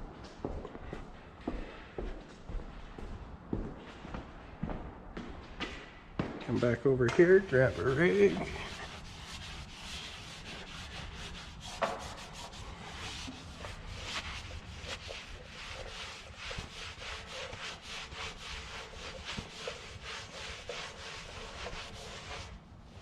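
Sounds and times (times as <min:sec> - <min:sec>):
rag rubbing metal tank: 0:07.2 - 0:22.6.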